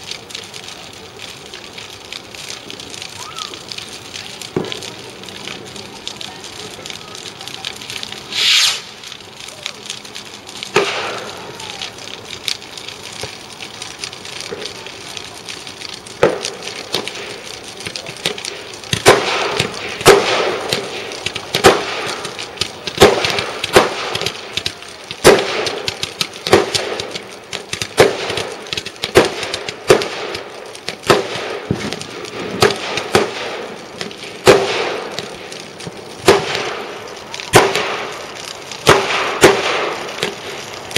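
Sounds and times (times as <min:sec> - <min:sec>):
fireworks banging and cracking: 0:00.0 - 0:40.9
brief hiss: 0:08.3 - 0:09.0.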